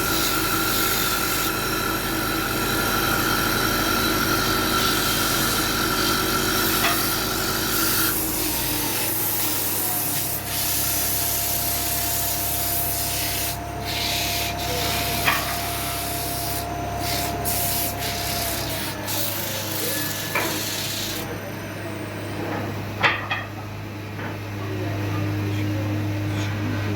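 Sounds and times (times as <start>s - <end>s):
low machine hum: 0.0s - 26.9s
sandpaper rubbing on wood: 7.7s - 21.2s.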